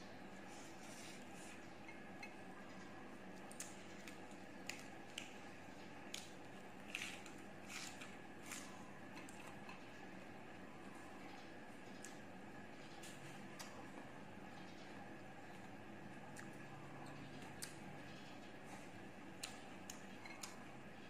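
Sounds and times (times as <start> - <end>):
faint steady hum: 0.0 - 21.0
person chewing food: 6.0 - 9.8, 17.3 - 17.8, 19.4 - 20.7.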